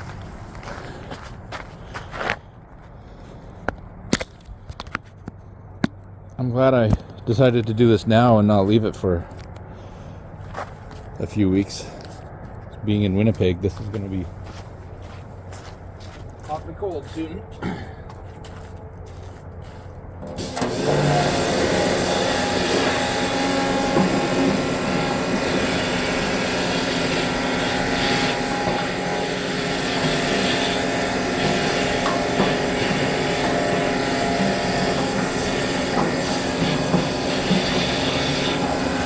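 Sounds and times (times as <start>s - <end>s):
pressure washer running: 20.2s - 39.0s
water stream flushing tank: 20.2s - 39.0s.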